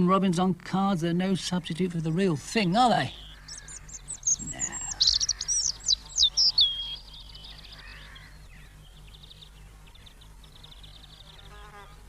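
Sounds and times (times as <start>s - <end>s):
robin singing: 0.0s - 12.0s.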